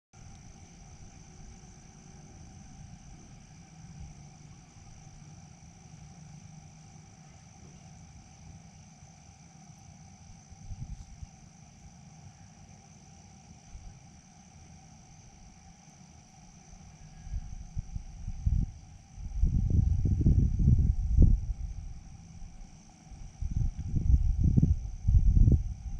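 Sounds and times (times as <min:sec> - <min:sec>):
crickets and insects chirring: 0:00.2 - 0:25.9
low rumble: 0:17.2 - 0:25.9.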